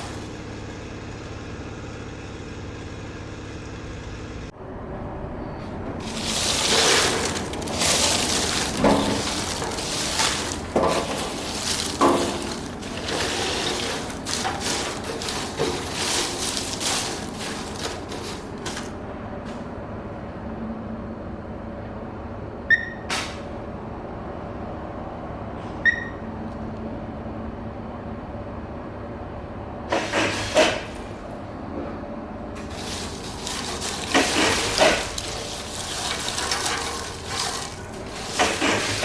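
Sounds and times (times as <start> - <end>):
machine hum: 0.0 - 19.4
machine clattering: 6.0 - 18.9, 32.6 - 39.0
short electronic beeps: 22.7 - 23.1, 25.8 - 26.2.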